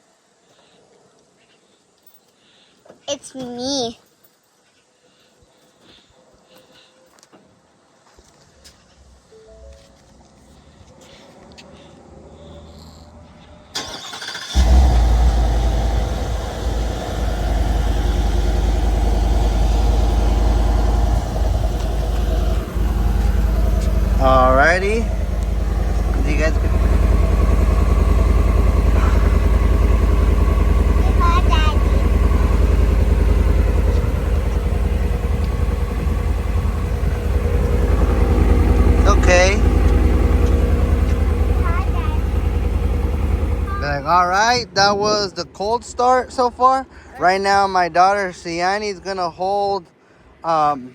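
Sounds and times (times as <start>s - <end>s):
car engine starting and idling: 9.7s - 47.6s
starter motor cranking: 13.7s - 41.5s.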